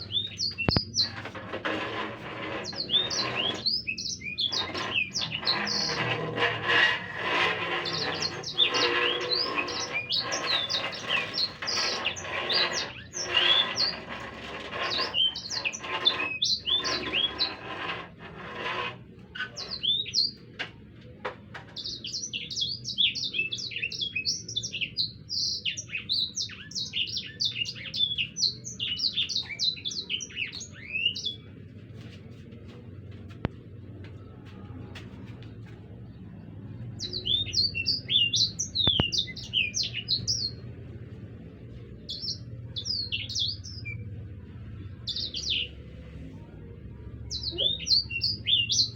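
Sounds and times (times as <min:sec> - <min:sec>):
songbird singing whistled notes: 0:00.0 - 0:01.2, 0:37.0 - 0:40.6, 0:47.3 - 0:48.9
rasping chatter: 0:00.5 - 0:19.9.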